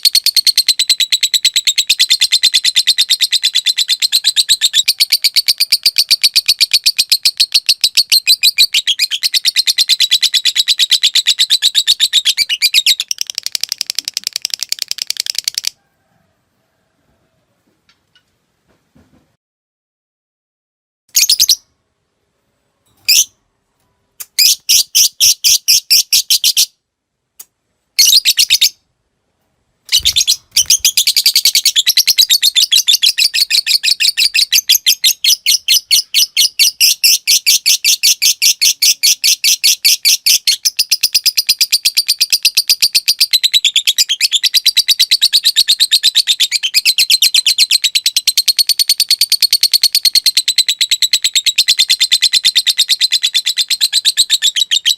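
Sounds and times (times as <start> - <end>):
lovebird chirping and trilling: 0.0 - 15.8, 21.1 - 21.8, 23.0 - 23.4, 24.2 - 26.8, 28.0 - 28.8, 29.9 - 54.9.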